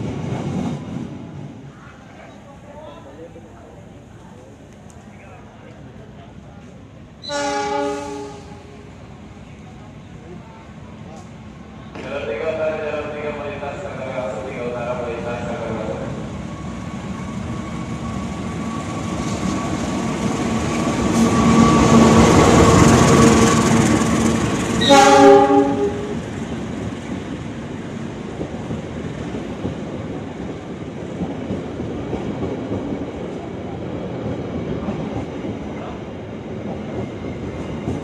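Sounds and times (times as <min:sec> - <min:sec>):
diesel locomotive passing: 0:00.0 - 0:38.0
train horn blast: 0:07.2 - 0:08.7, 0:24.8 - 0:26.2.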